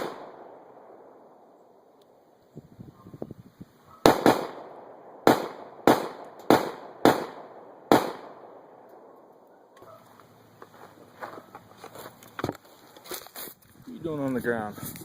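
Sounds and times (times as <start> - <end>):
gunshots with echo: 0.0 - 1.2, 4.0 - 9.2.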